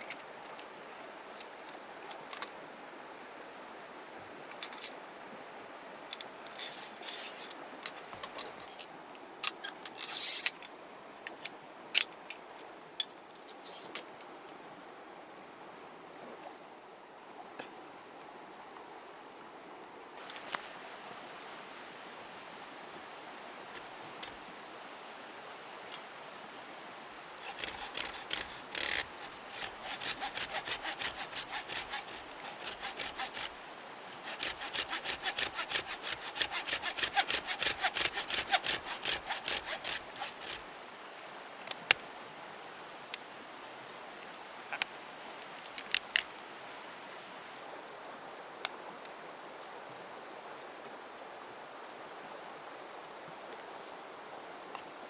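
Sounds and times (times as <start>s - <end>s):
hand saw cutting wood: 27.4s - 40.7s.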